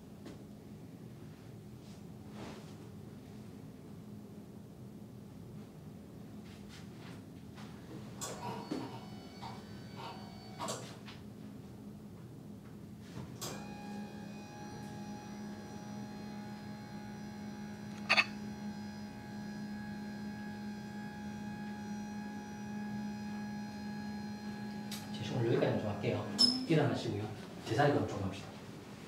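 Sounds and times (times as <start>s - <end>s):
steady electrical hum: 10.3s - 29.0s
thin high whine: 17.9s - 18.9s.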